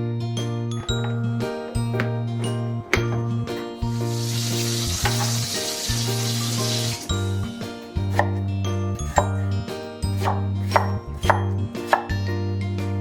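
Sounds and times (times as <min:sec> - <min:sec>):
background music: 0:00.0 - 0:13.0
frying sizzle: 0:04.0 - 0:07.1
knife chopping on a cutting board: 0:08.0 - 0:08.4, 0:10.1 - 0:12.2.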